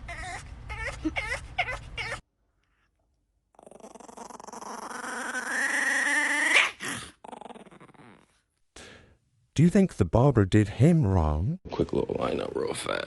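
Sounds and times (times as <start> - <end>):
dog whining growl: 0.0 - 2.2, 3.5 - 8.4.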